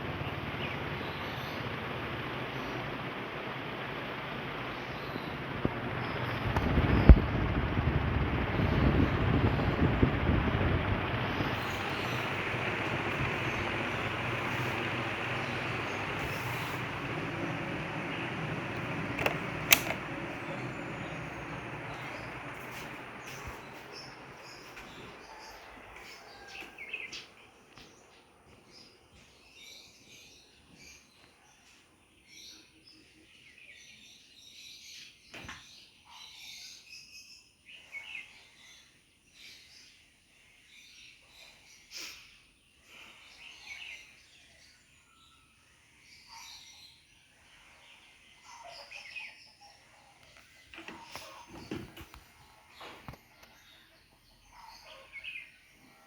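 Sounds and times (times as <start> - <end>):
faint birds chirping: 0.0 - 56.0
sharp clicks: 11.4 - 24.9.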